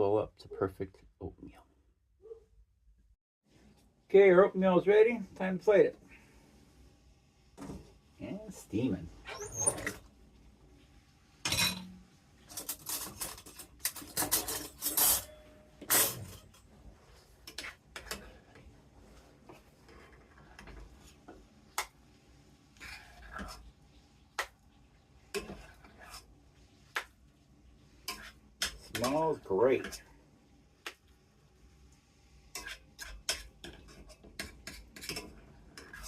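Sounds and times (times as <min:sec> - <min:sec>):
spoon scraping a pot: 0:17.4 - 0:18.7, 0:25.3 - 0:26.3, 0:28.0 - 0:30.1, 0:32.5 - 0:36.0.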